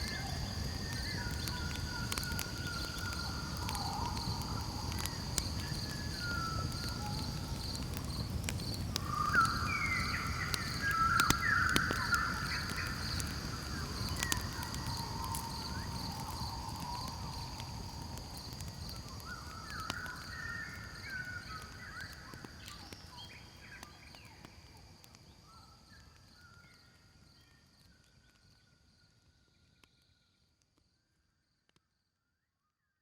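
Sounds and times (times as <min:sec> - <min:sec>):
campfire crackling: 0:00.0 - 0:28.6.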